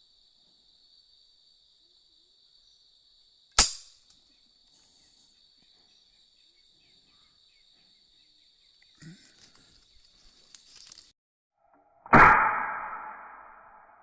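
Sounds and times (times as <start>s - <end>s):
insects droning: 0.0s - 11.1s
air rifle shot: 12.1s - 14.0s.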